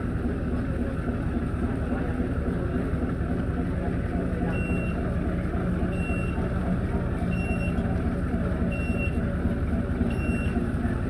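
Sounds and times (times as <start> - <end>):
engine running: 0.0 - 11.0
reversing alarm beeping: 4.5 - 5.0, 5.9 - 6.4, 7.3 - 7.8, 8.7 - 9.2, 10.1 - 10.6.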